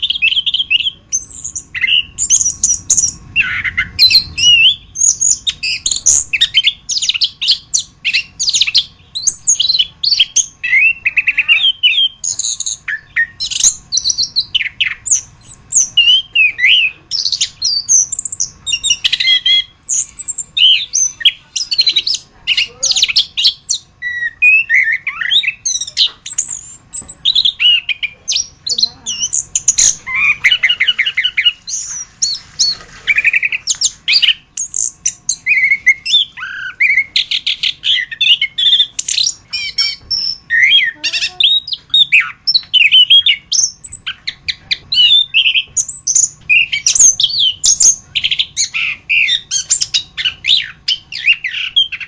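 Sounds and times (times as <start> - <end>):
thrush singing: 0.0 - 22.8.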